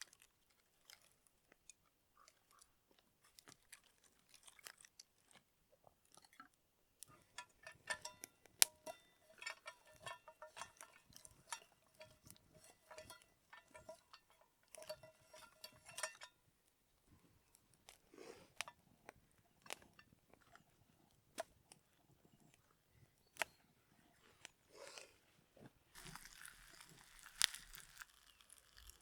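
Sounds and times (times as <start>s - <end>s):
light clicking and clinking: 6.2s - 16.5s.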